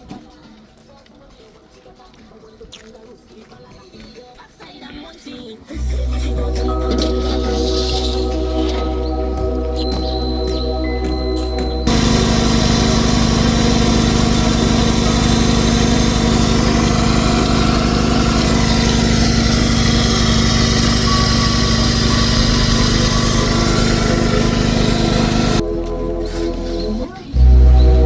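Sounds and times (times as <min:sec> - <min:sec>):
small motor humming: 0:11.6 - 0:25.6.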